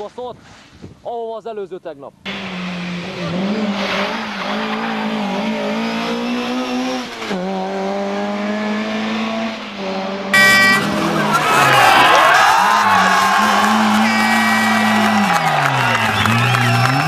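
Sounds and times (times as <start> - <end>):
race car engine revving: 2.3 - 17.0
loud harsh sound: 10.4 - 11.2, 13.8 - 15.2.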